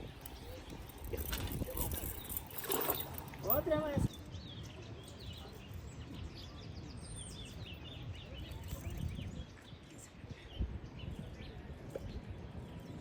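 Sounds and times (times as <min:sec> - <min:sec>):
birds chirping: 0:00.0 - 0:09.8.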